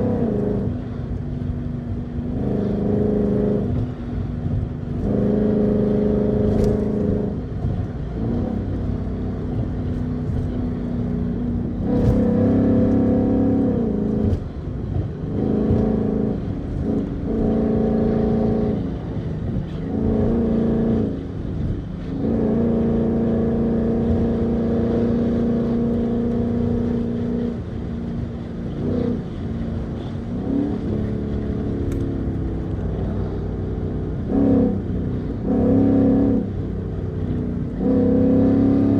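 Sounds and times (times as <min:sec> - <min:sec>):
car engine revving high: 0:00.0 - 0:38.9.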